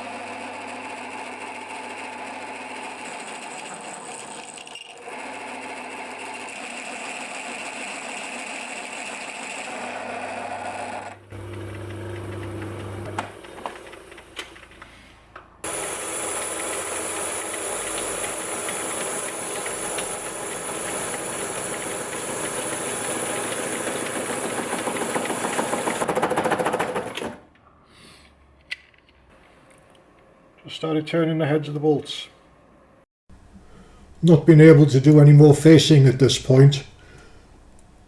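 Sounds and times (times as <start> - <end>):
lathe machine hum: 11.2 - 14.4, 15.6 - 26.1
lathe turning with high whine: 15.6 - 26.1.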